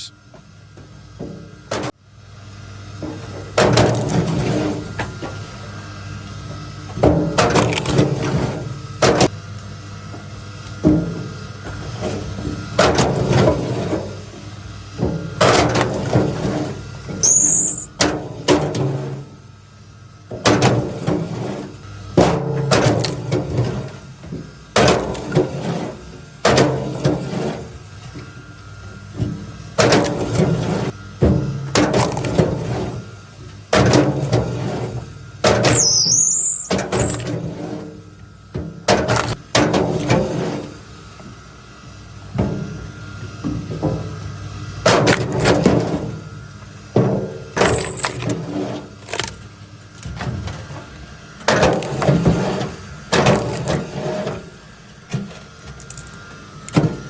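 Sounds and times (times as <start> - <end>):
log splitter humming: 44.6 - 57.0.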